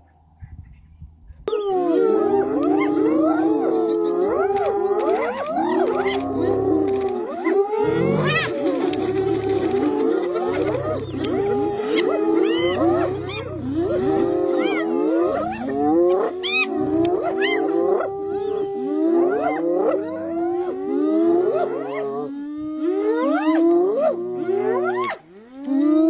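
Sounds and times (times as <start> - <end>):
hyenas whooping and giggling: 1.5 - 22.2
low growls: 2.1 - 21.5.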